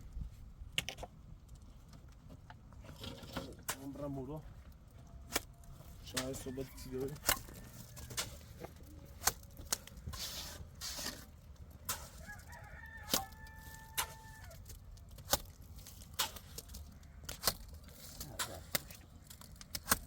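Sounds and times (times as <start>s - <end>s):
rooster crowing: 6.2s - 8.3s, 12.0s - 14.6s.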